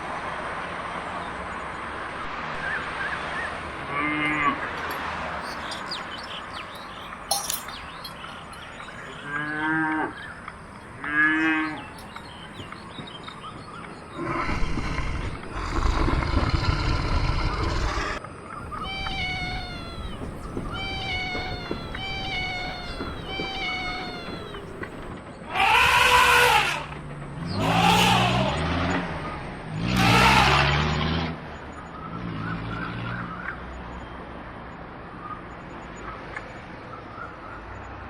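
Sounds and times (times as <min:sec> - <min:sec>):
cat meowing: 0:18.8 - 0:26.9.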